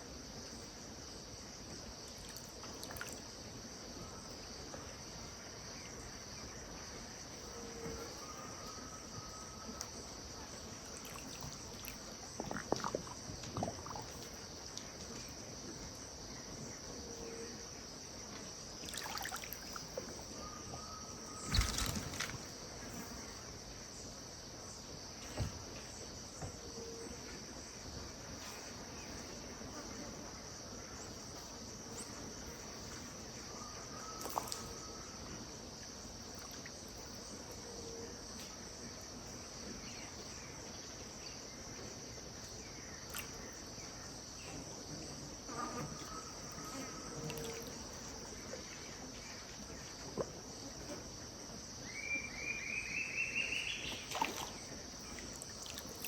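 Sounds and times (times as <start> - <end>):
insects buzzing: 0.0 - 56.0.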